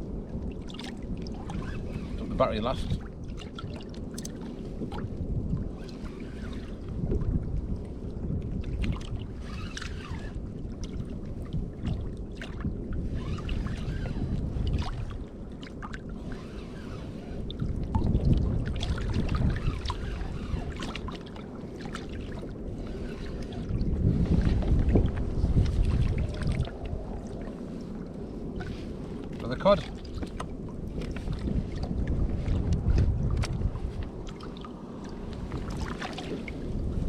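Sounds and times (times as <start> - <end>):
water lapping against kayak hull: 0.0 - 37.0
wind rumble on microphone: 0.0 - 37.0
small knocks from boat: 29.3 - 36.6.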